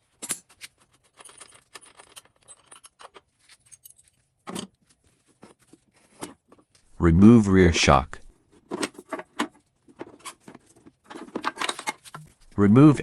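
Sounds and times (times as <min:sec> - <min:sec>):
metal tools clicking and clinking: 0:00.1 - 0:04.7.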